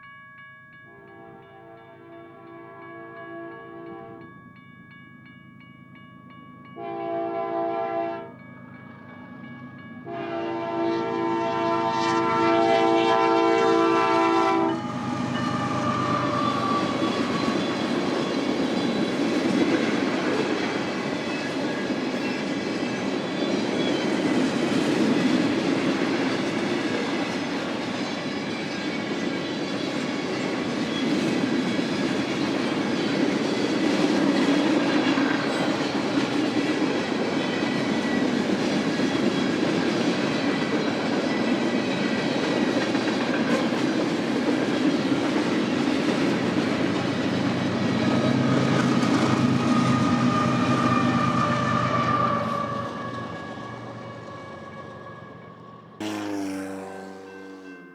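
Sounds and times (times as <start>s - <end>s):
train horn: 0.9s - 4.3s, 6.8s - 8.4s, 10.0s - 18.3s, 48.9s - 57.9s
freight train cars rolling past: 4.0s - 57.9s.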